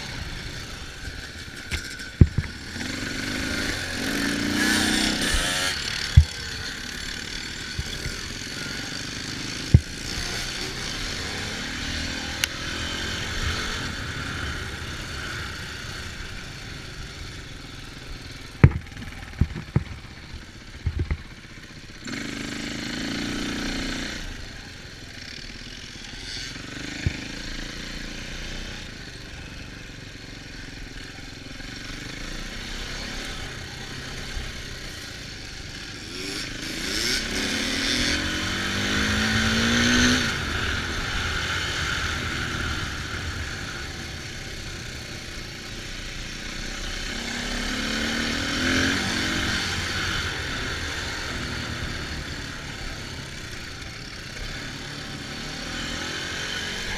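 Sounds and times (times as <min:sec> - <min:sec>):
dirt bike engine revving: 0:00.0 - 0:17.1, 0:21.9 - 0:24.6, 0:31.9 - 0:56.9.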